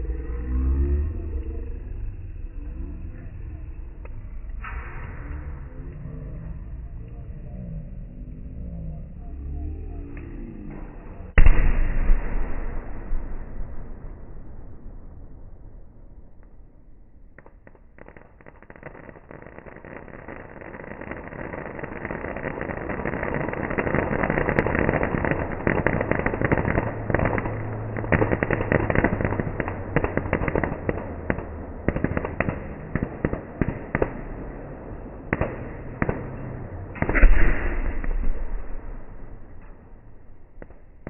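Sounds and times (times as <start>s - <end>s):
loud blast: 0.0s - 6.4s, 9.2s - 20.1s, 20.7s - 41.0s
firecracker bangs: 11.2s - 16.6s, 17.3s - 41.0s.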